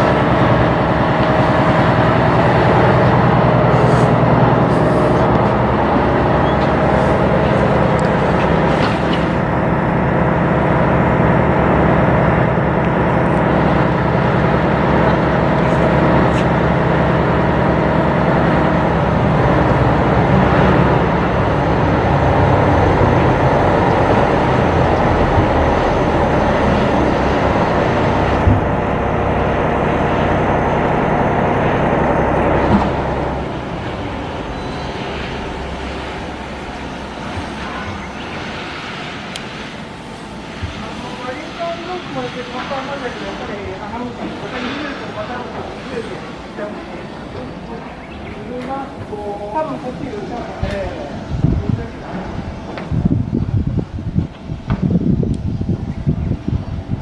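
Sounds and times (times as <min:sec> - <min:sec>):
ship diesel engine droning: 0:00.0 - 0:57.0.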